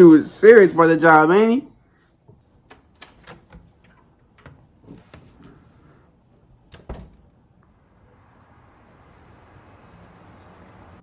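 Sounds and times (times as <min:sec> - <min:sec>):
faint clicks and knocks: 0:02.2 - 0:05.6.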